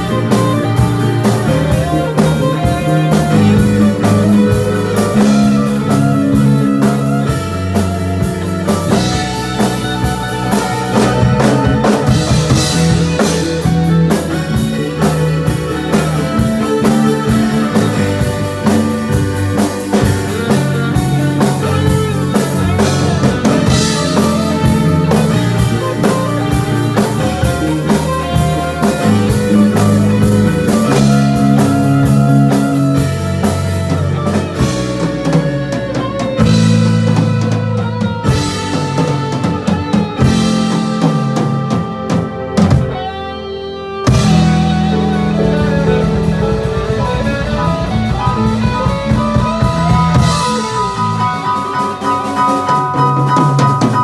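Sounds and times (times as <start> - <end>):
drum kit: 0.0 - 54.0
electric guitar: 0.0 - 54.0
steady bass line: 0.0 - 54.0.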